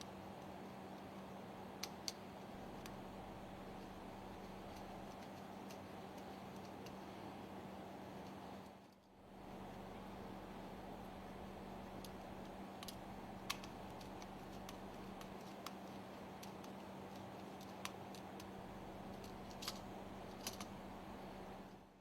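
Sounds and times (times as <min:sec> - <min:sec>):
faint steady hum: 0:00.0 - 0:22.0
small tools clicking: 0:12.0 - 0:18.5, 0:19.1 - 0:20.7.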